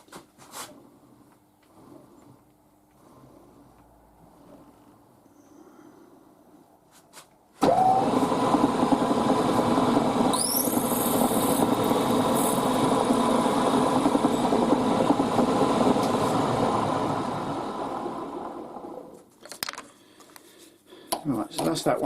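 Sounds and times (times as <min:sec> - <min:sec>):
milling machine spindle running: 0:07.6 - 0:19.1
drill squealing into brass: 0:10.3 - 0:11.1.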